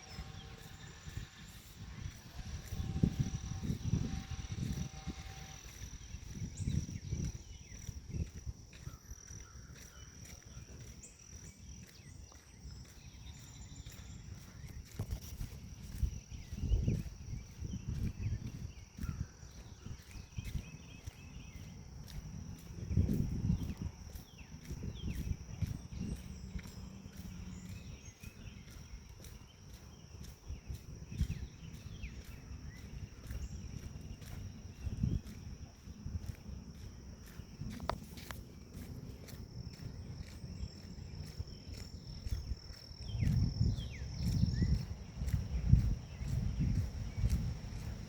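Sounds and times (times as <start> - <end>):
fast pulsing insect call: 0.0 - 48.0
insects trilling: 0.0 - 48.0
low thumps and rumbles: 12.8 - 48.0.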